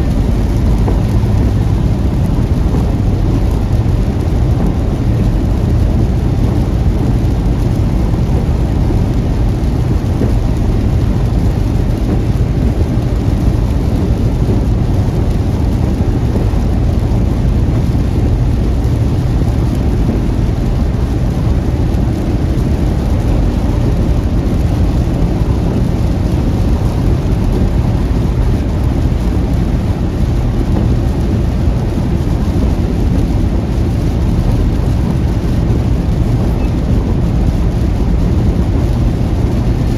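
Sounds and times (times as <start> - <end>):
car road and engine rumble: 0.0 - 39.9
rain hiss: 0.0 - 39.9.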